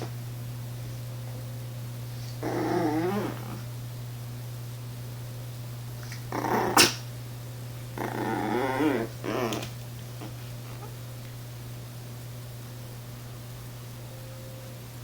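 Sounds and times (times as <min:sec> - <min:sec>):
small dog whining and growling: 0:02.2 - 0:03.7, 0:06.1 - 0:07.1, 0:08.0 - 0:11.0.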